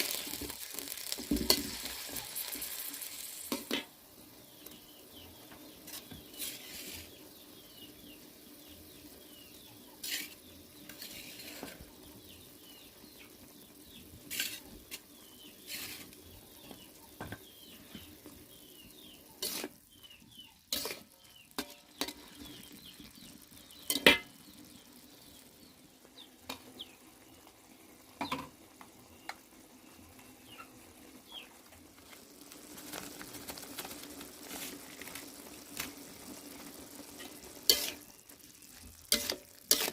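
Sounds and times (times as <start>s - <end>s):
food sizzling in a pan: 0.0s - 39.9s
spatula scraping a pan: 5.8s - 7.4s, 9.9s - 11.9s, 14.2s - 16.8s, 17.5s - 24.5s, 36.7s - 39.9s.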